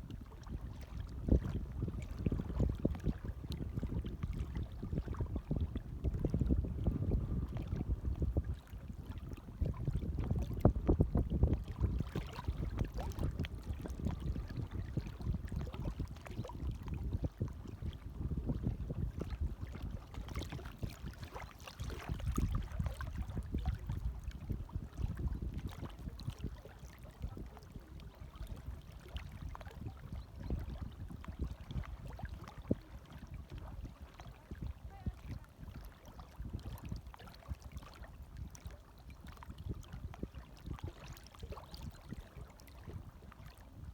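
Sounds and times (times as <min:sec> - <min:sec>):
small waves lapping: 0:18.6 - 0:43.9.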